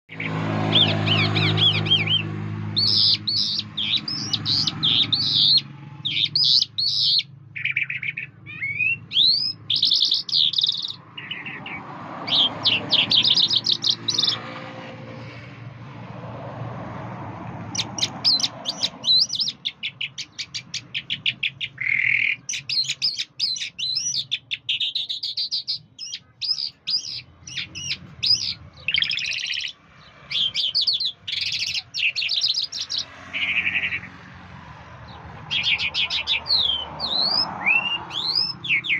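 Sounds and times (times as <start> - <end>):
songbird trilling and whistling: 0.1 - 14.5, 17.7 - 34.1, 35.3 - 38.9.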